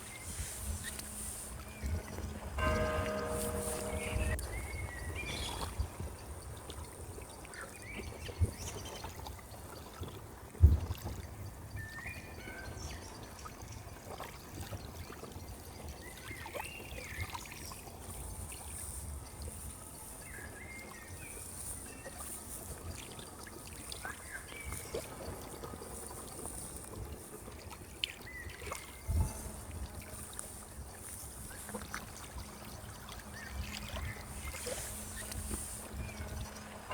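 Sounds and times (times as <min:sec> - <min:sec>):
bird chirps: 0:02.6 - 0:05.6
water trickling: 0:23.0 - 0:36.9.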